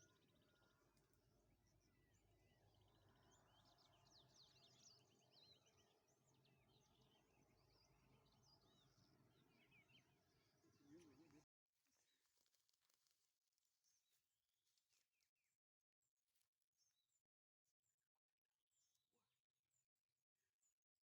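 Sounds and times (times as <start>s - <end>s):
small birds chirping and trilling: 0.0s - 11.4s.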